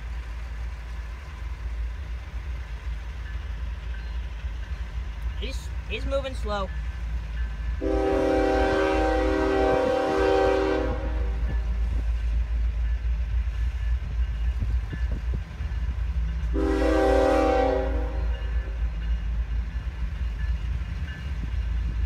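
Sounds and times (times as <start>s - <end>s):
low rumble of moving train: 0.0s - 22.0s
locomotive air horn: 7.8s - 11.6s, 16.5s - 18.3s.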